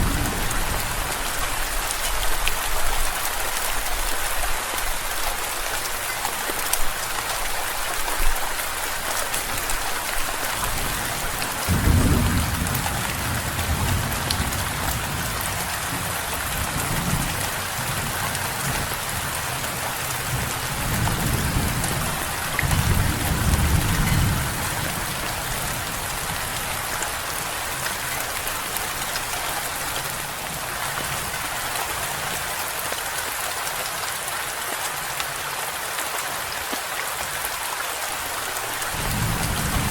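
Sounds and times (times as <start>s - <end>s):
thunder rolling: 0.0s - 1.7s, 10.6s - 15.4s, 20.3s - 25.4s, 39.0s - 39.9s
rain hissing: 0.0s - 15.3s.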